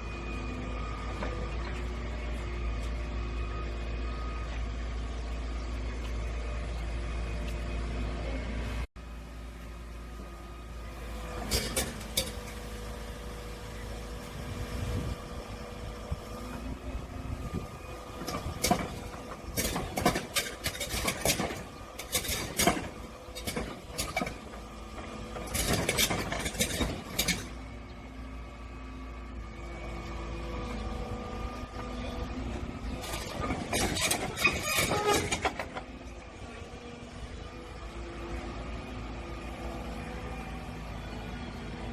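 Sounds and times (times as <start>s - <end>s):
excavator engine running: 0.0s - 41.9s
metallic clanks and knocks: 11.4s - 12.6s, 18.2s - 27.6s, 33.0s - 36.0s.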